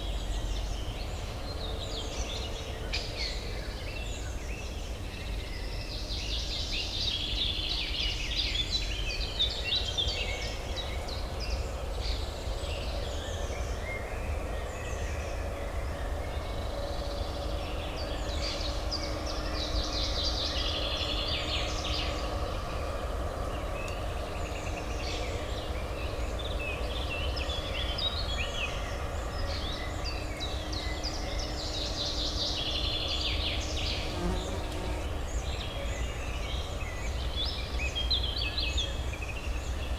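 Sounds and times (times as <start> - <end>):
songbirds chirping: 23.3 - 39.9.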